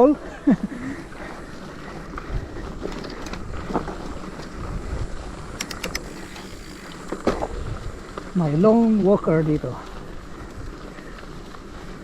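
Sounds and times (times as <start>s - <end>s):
wind buffeting microphone: 0.7s - 12.0s
sharp clicks: 5.5s - 7.0s.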